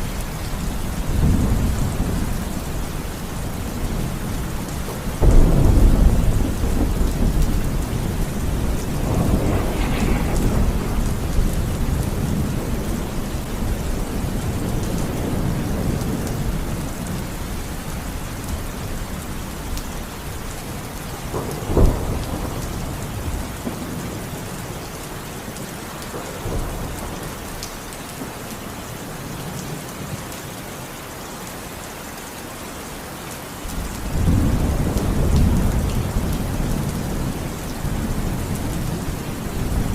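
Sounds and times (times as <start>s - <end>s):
rolling thunder: 0.0s - 19.4s, 20.3s - 24.7s, 33.7s - 39.9s
steady rain: 0.0s - 39.9s
sharp thunder clap: 5.2s - 13.3s.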